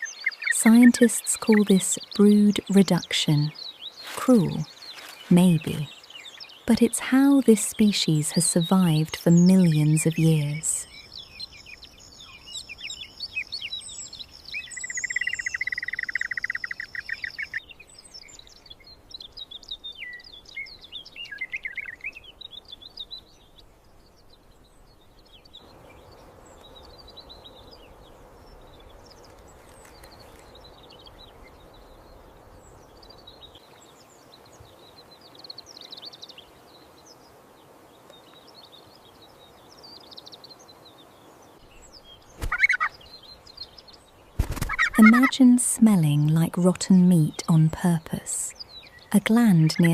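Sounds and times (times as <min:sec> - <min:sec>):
small birds chirping: 0:00.0 - 0:49.9
steady background hiss: 0:00.0 - 0:49.9
buzzy bird trill: 0:42.2 - 0:43.2, 0:44.4 - 0:49.9.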